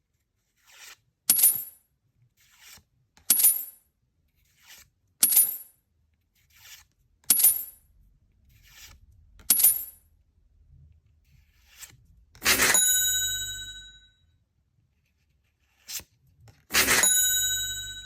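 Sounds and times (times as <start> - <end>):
ringing ding: 12.6 - 14.2, 17.0 - 18.0.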